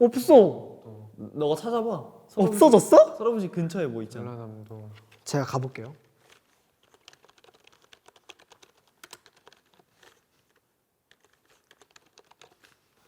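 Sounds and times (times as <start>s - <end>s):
typing on computer keyboard: 6.8s - 12.8s.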